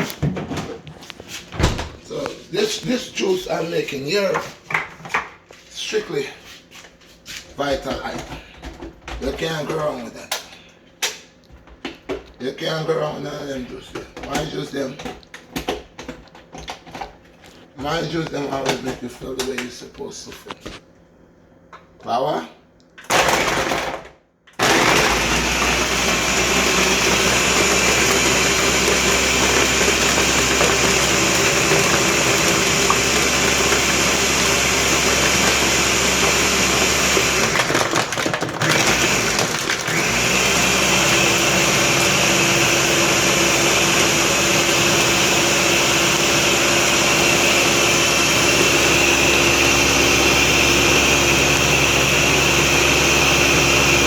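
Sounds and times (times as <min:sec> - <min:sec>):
blender crushing ice: 0:23.1 - 0:54.0.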